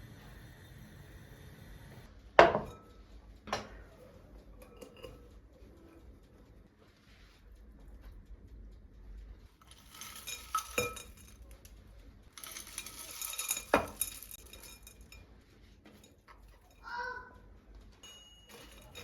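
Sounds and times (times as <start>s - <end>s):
utensils scraping dishes: 3.5s - 5.9s, 9.6s - 11.6s, 12.3s - 16.8s, 18.0s - 19.0s
sharp ringing clinks: 12.4s - 15.2s, 18.0s - 19.0s.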